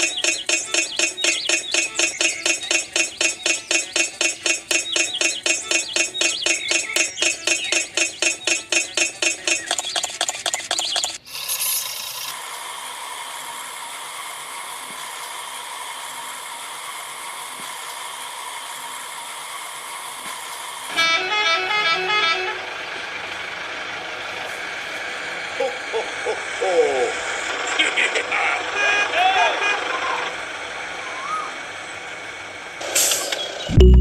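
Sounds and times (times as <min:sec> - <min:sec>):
fast pulsing sound: 0:00.0 - 0:11.2
steady vehicle-like hum: 0:00.0 - 0:11.2, 0:12.3 - 0:34.0
horn toots: 0:20.9 - 0:22.9.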